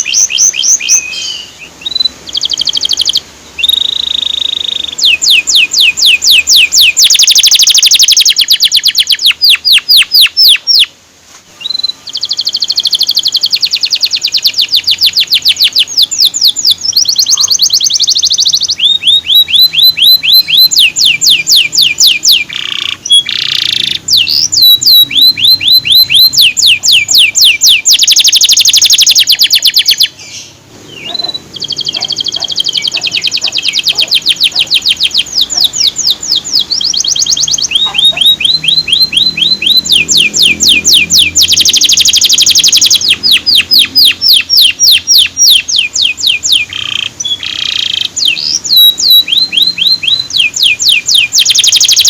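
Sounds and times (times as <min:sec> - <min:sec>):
canary singing trills: 0:00.0 - 0:52.0.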